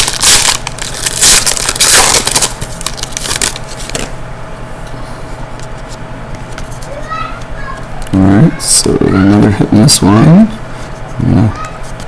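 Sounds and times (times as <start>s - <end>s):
foil wrapper crinkling and tearing: 0.0s - 4.1s.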